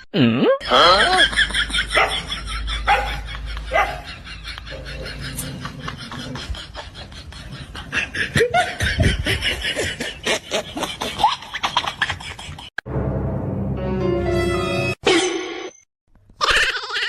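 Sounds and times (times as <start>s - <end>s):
person laughing: 0.2s - 12.7s.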